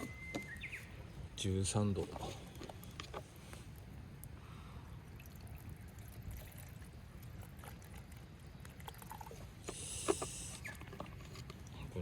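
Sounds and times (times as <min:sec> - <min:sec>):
short hiss: 0:09.6 - 0:10.6.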